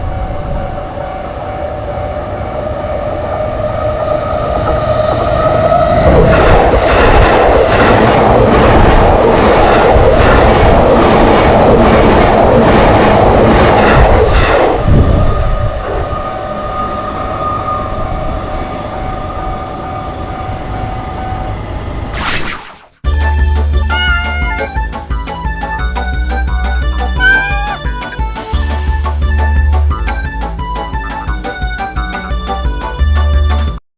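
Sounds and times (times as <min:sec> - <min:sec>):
train rumbling past: 0:00.0 - 0:22.1, 0:23.1 - 0:33.7
steady high tones: 0:23.1 - 0:32.6.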